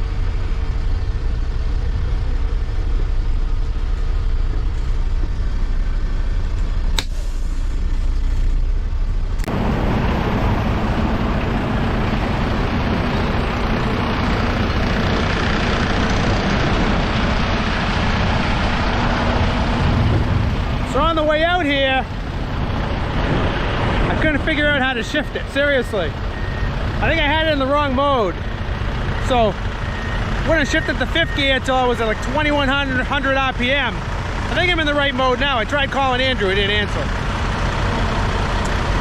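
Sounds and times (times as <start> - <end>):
truck engine rumble: 0.0 - 39.0
sharp click: 7.0 - 7.4
loud steady rushing noise: 9.5 - 26.2.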